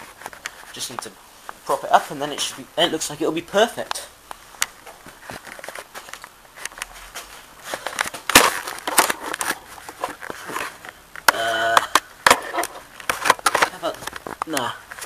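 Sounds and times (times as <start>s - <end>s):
person humming: 11.3s - 12.0s.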